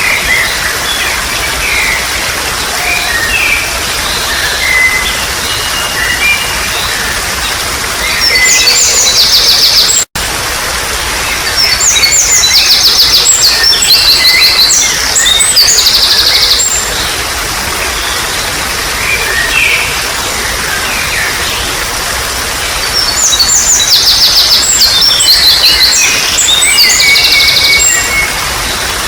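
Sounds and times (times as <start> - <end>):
water trickling: 0.0 - 29.0
birds trilling and chirping: 11.2 - 29.0.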